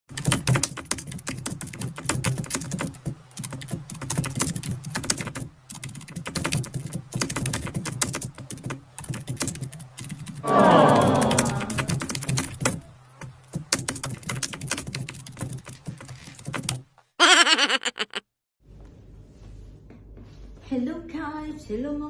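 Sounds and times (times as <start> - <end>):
rapid clicking and tapping: 0.1 - 10.4, 11.3 - 16.9.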